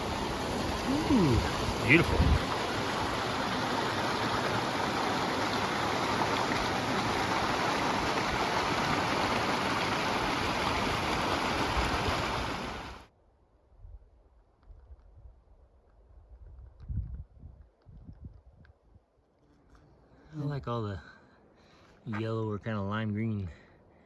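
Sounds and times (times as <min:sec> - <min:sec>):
mountain creek rushing: 0:00.0 - 0:13.1.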